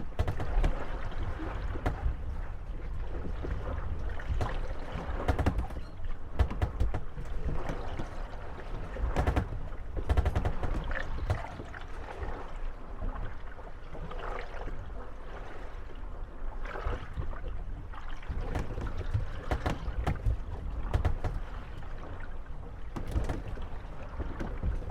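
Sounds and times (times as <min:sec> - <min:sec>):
wooden boats knocking and creaking: 0:00.0 - 0:15.6, 0:16.7 - 0:24.9
water lapping at hulls: 0:00.0 - 0:24.9.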